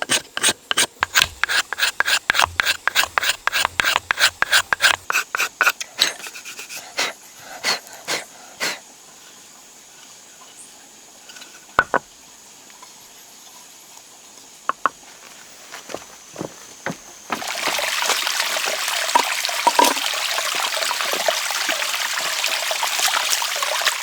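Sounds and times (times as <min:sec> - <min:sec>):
sharp knocks: 0:11.8 - 0:12.0.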